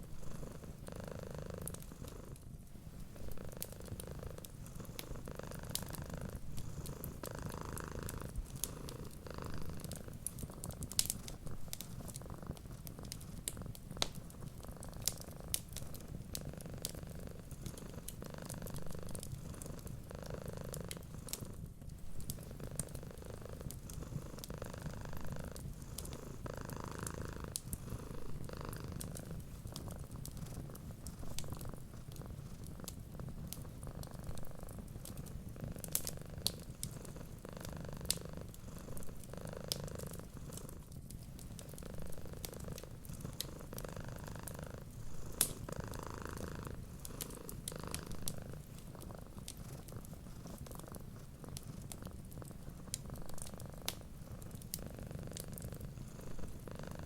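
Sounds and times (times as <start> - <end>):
cat purring: 0.0 - 57.0
wood fire crackling: 3.0 - 20.1, 20.7 - 57.0.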